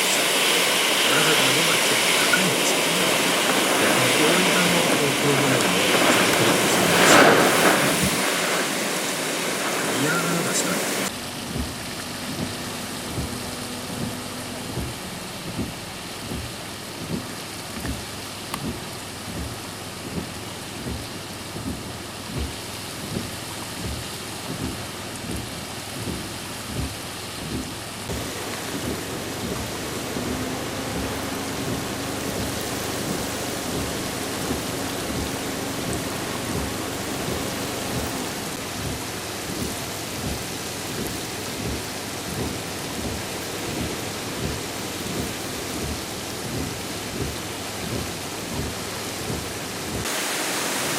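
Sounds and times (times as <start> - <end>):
heavy rain pouring: 0.0 - 50.9
low thumps: 11.2 - 50.1.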